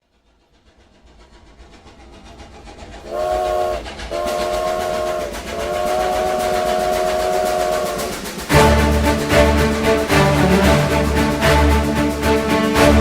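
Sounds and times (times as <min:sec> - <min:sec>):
train chugging: 0:00.0 - 0:13.0
train whistle blasts: 0:03.1 - 0:09.6.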